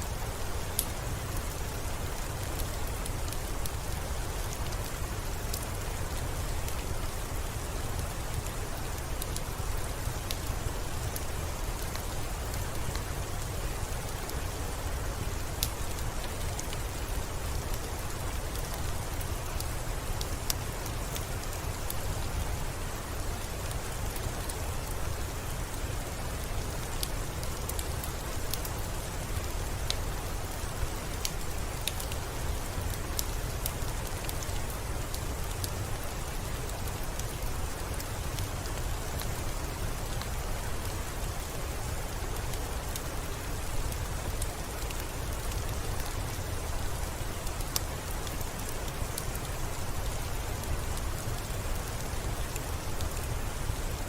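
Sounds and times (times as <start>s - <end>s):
steady rain: 0.0s - 54.0s
raindrops ticking: 0.7s - 22.2s.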